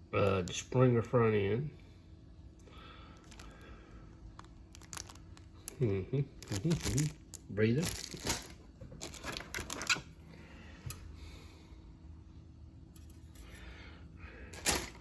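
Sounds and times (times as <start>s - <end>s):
plastic bags crinkling: 3.2s - 3.6s, 4.3s - 10.0s.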